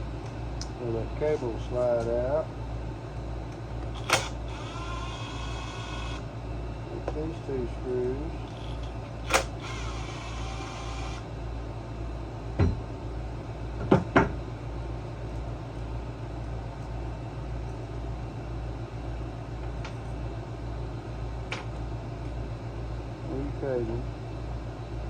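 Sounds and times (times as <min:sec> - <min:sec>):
steady low hum: 0:00.0 - 0:25.0
sharp clicks: 0:03.8 - 0:05.0, 0:08.5 - 0:11.2
knock: 0:13.8 - 0:14.4.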